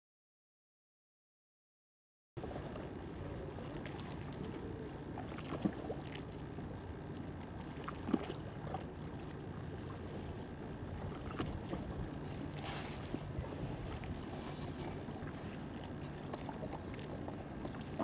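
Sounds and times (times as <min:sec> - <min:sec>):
water lapping: 0:02.4 - 0:18.0
wind on microphone: 0:10.9 - 0:15.6.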